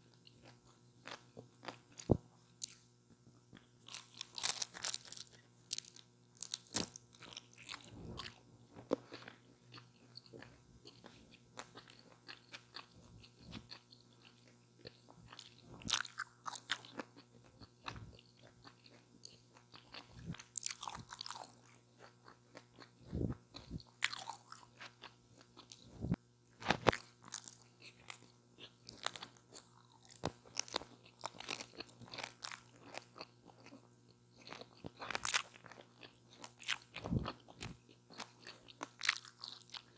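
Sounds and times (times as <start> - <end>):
crunching bites of taco: 3.5 - 25.8, 26.5 - 39.9
wet chewing: 3.6 - 26.1.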